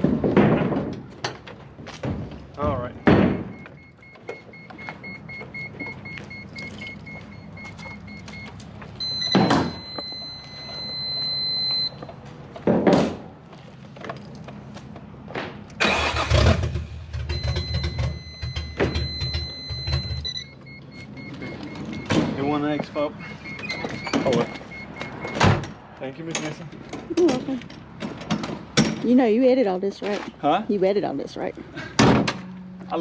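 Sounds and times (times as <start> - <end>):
car electronic chime beeping: 2.7 - 12.1, 17.3 - 25.4.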